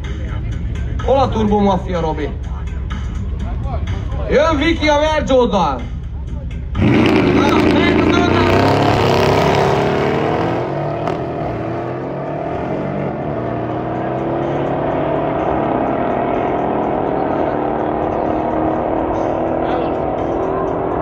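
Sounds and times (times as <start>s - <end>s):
car engine note rising: 6.7s - 21.0s.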